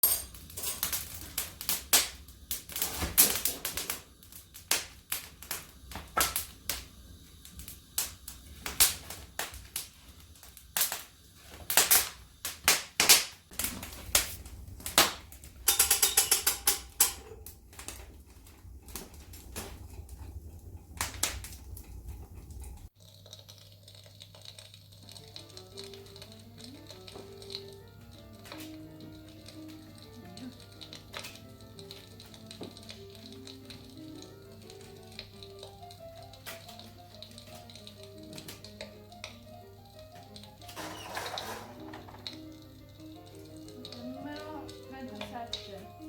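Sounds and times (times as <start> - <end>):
hard objects clicking and knocking: 14.8 - 21.9, 40.2 - 42.5.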